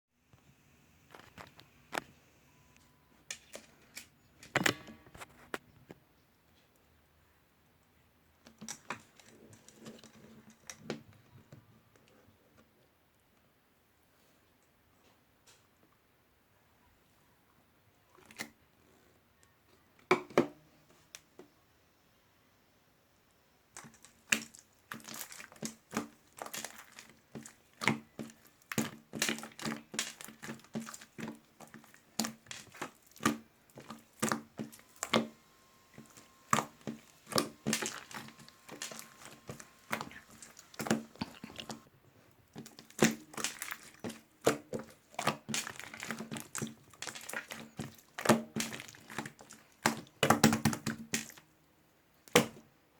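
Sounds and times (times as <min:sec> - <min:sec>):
packaging crinkling and crackling: 0:23.8 - 0:41.9, 0:42.5 - 0:51.4.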